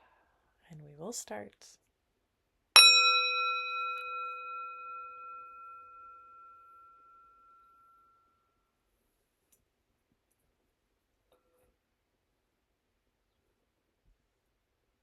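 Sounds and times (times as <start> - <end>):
meditation bell ringing: 2.8 - 8.4.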